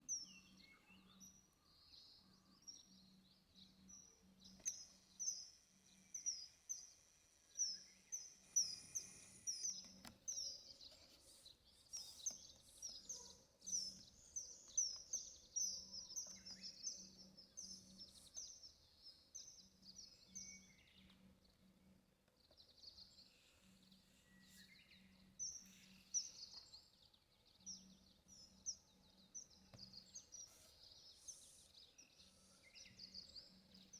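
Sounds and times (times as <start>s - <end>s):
bird chirping: 0.0s - 21.2s, 23.8s - 33.9s.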